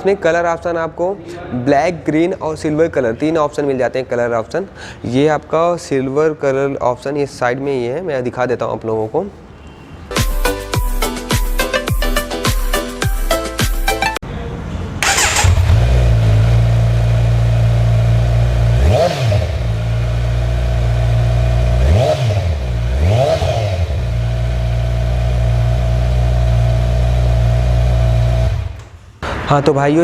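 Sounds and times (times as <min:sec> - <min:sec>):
motorcycle engine idling and revving: 0:15.0 - 0:28.8.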